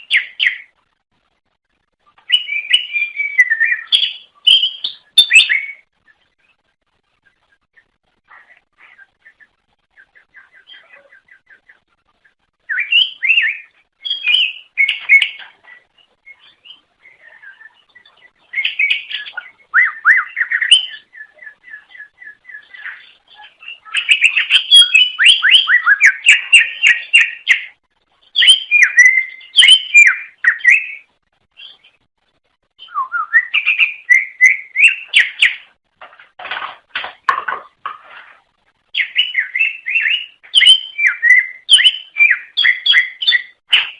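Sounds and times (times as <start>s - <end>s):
bird singing whistled phrases: 2.3s - 5.9s, 12.7s - 15.4s, 16.2s - 27.7s, 28.3s - 31.9s, 32.8s - 35.6s, 39.0s - 43.9s.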